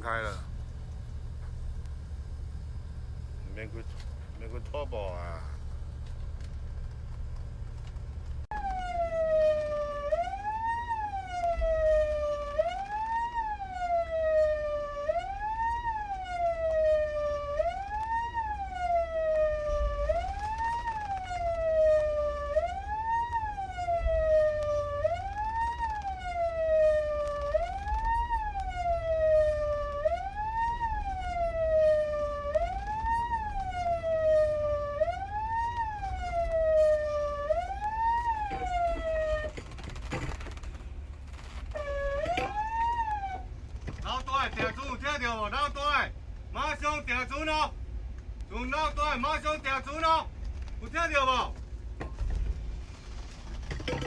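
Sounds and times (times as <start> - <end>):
boat siren wailing: 8.5 - 40.7, 41.3 - 47.8.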